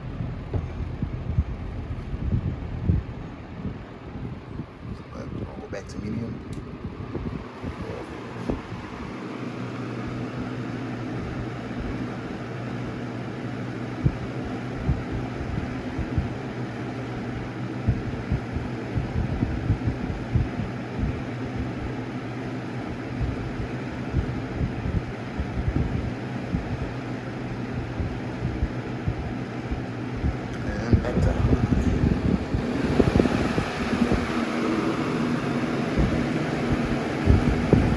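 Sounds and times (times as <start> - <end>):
wind buffeting microphone: 0.0 - 9.2, 22.9 - 27.0, 27.6 - 37.9
box fan running: 0.0 - 37.9.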